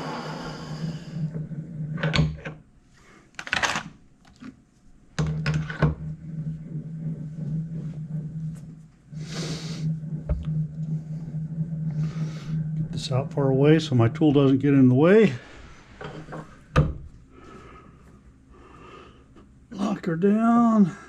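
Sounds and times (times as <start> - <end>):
metal lathe whine: 0.0 - 2.0
low hum: 0.0 - 2.9, 4.9 - 19.8.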